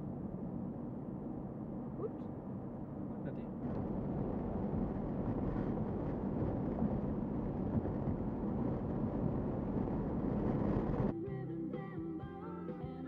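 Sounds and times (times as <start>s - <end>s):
vehicle rumbling in motion: 0.0s - 13.0s
wind noise on microphone: 3.6s - 11.2s.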